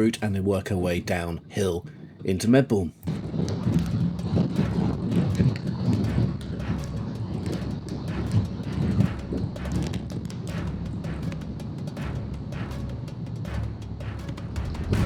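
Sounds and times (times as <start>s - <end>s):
wind on microphone: 3.0s - 13.1s.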